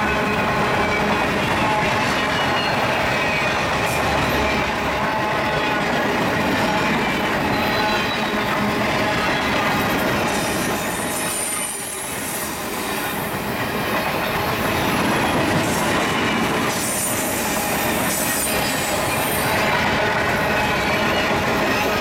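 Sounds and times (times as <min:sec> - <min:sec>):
freight train wheels rumbling on rails: 0:00.0 - 0:22.0
high-pitched wheel squeals: 0:07.4 - 0:12.2.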